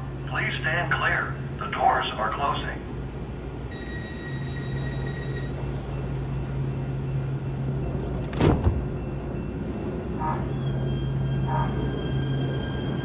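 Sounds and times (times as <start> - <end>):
train low hum: 0.0 - 13.0
high warning tone: 3.7 - 8.1.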